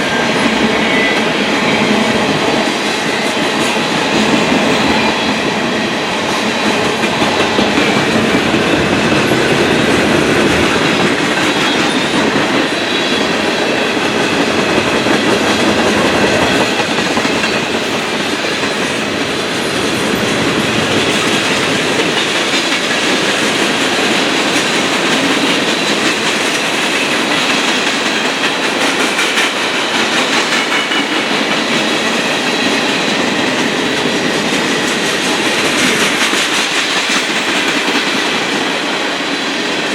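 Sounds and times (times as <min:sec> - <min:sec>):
freight train rolling past: 0:00.0 - 0:39.9
wheels clacking over rail joints: 0:00.0 - 0:39.9.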